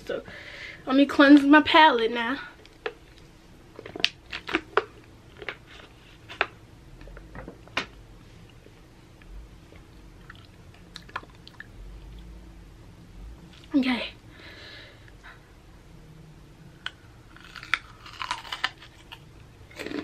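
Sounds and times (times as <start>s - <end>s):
person chewing food: 2.7s - 6.5s, 9.7s - 12.3s, 16.8s - 20.0s.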